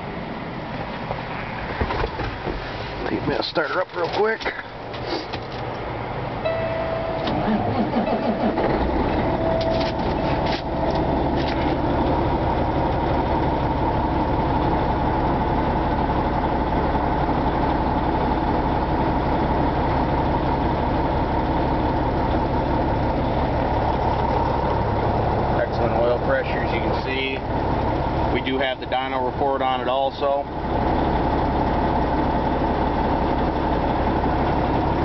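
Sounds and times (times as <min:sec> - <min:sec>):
diesel truck engine idling: 0:00.0 - 0:35.0
brief electronic tone: 0:06.4 - 0:10.9.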